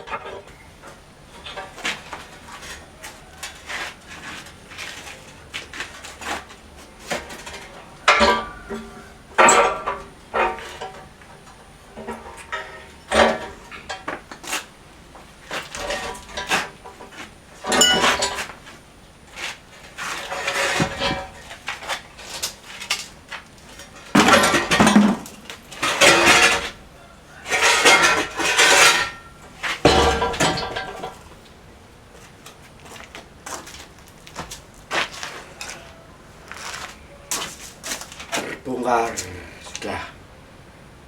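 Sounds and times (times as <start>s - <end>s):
metallic clanking and scraping: 0.0s - 31.6s.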